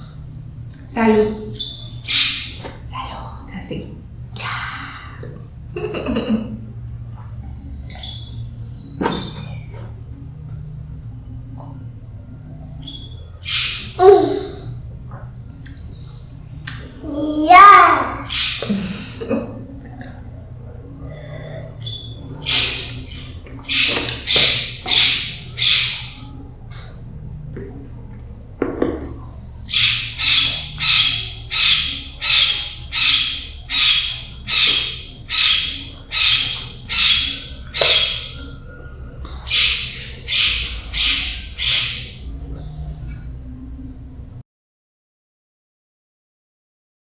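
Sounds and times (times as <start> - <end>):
bird squawking: 0.9 - 2.9, 7.3 - 14.9, 15.5 - 27.9, 29.1 - 43.8.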